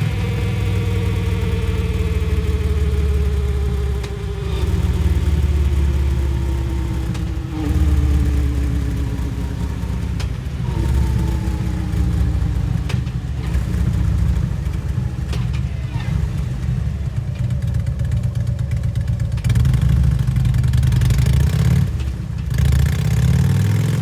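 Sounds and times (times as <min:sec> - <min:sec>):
motorcycle engine deep exhaust: 0:00.0 - 0:24.0.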